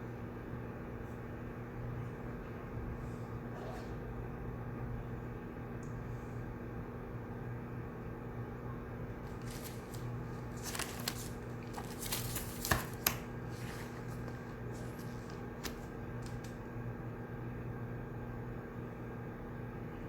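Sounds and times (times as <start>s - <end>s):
ventilation hum: 0.0s - 20.0s
paper rustling: 9.2s - 16.6s.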